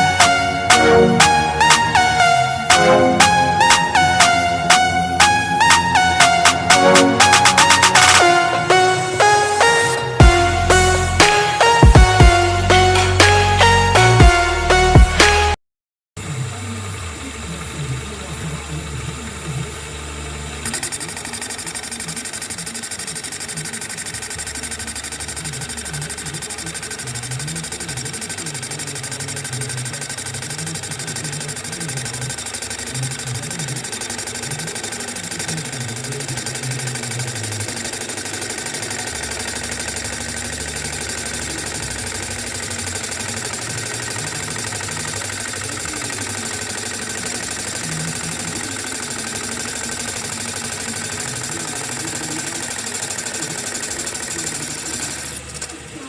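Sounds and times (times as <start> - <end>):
milling machine cutting metal: 16.2 - 56.0.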